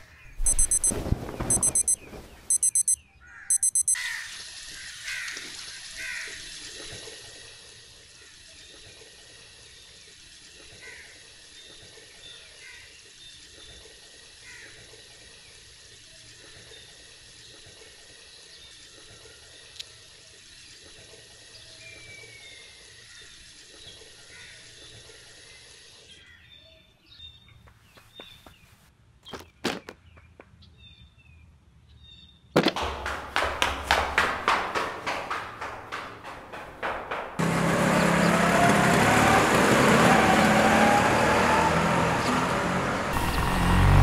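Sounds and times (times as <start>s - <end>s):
faint high chirps: 0.4s - 4.0s
sharp knocks: 32.6s - 38.3s.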